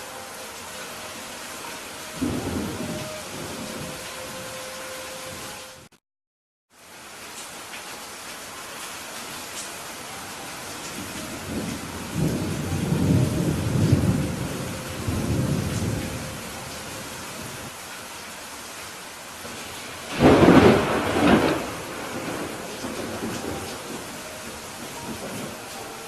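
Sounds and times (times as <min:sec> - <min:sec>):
rain hiss: 0:00.0 - 0:05.9, 0:06.7 - 0:26.0
rolling thunder rumble: 0:02.2 - 0:04.4, 0:11.0 - 0:17.7, 0:19.5 - 0:25.7
thunderclap: 0:20.1 - 0:24.1.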